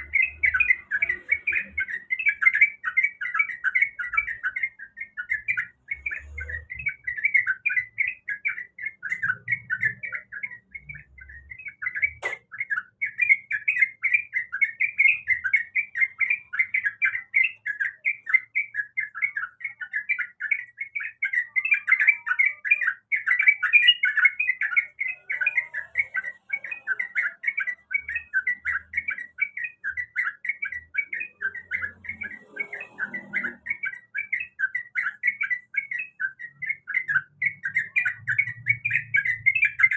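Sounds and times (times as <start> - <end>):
sharp click: 12.2 - 12.5.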